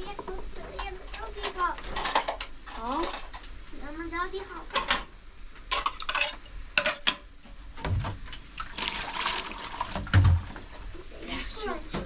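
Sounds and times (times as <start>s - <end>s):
water splashing: 8.5s - 10.8s.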